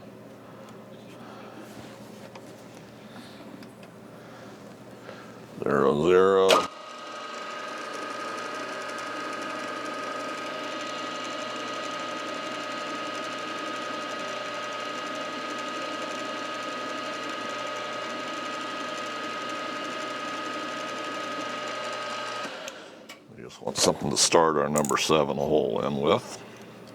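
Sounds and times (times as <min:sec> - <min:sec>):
milling machine motor whining: 0:05.6 - 0:14.9.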